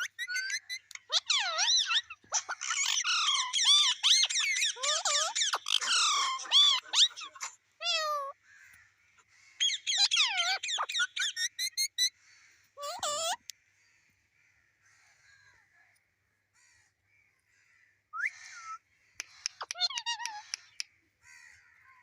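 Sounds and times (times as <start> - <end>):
parrot squawking and chirping: 0.0 - 8.4, 9.6 - 12.2, 12.8 - 13.5, 18.2 - 20.8.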